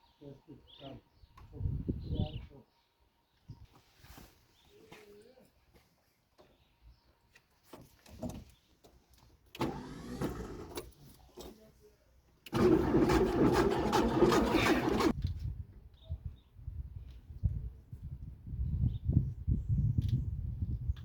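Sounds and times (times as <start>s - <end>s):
car engine cranking on starter: 9.5s - 11.0s, 12.4s - 15.1s.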